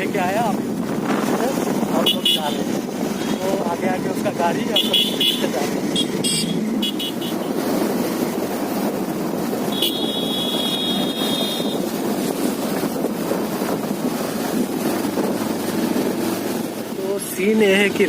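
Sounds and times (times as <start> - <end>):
motorcycle engine running: 0.0 - 18.0
wind over microphone: 0.0 - 18.0
horn sounding: 4.8 - 7.5, 9.7 - 11.8.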